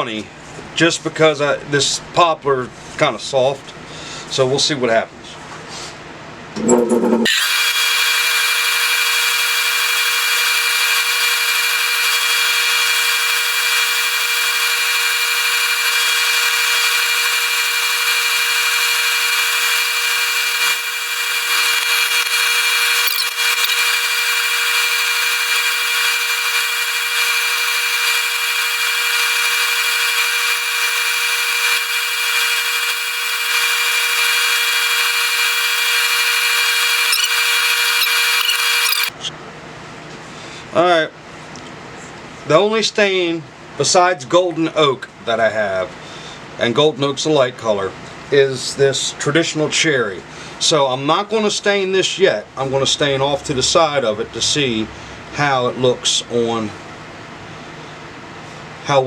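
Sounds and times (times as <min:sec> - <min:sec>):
wood lathe whine: 0:07.3 - 0:39.2.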